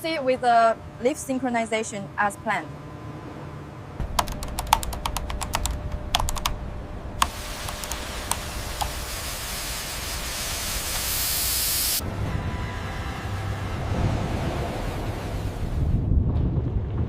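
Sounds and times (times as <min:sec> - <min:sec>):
rapid sharp clicks: 0:04.0 - 0:06.6, 0:07.2 - 0:09.0
hiss: 0:07.2 - 0:12.0.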